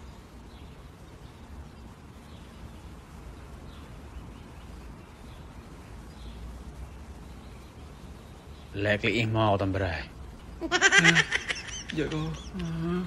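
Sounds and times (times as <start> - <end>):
faint bird chirps: 0.0 - 13.0
low hum and hiss: 0.0 - 13.0.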